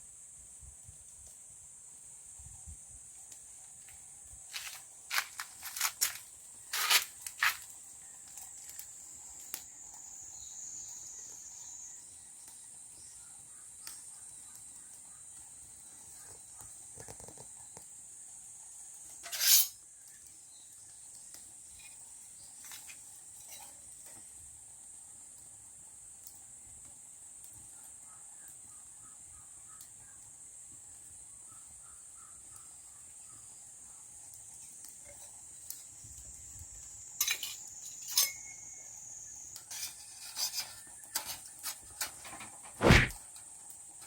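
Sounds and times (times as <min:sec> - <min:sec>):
high-pitched insect drone: 0:37.1 - 0:39.6.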